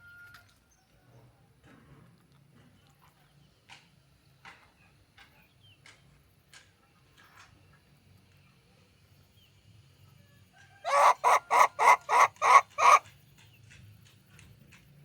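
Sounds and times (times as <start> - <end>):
loud animal calls: 10.8 - 13.0.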